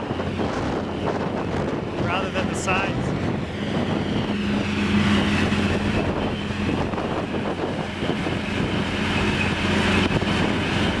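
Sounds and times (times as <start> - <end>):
diesel engine and fan droning: 0.0 - 11.0
rushing air: 0.0 - 11.0.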